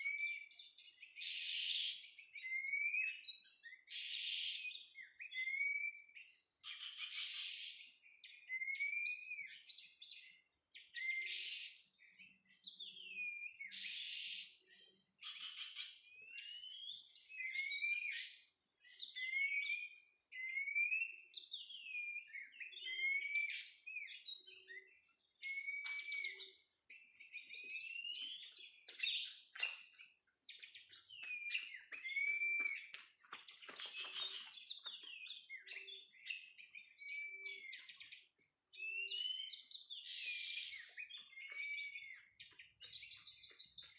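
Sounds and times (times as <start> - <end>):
bird whistling song: 0.0 - 43.9.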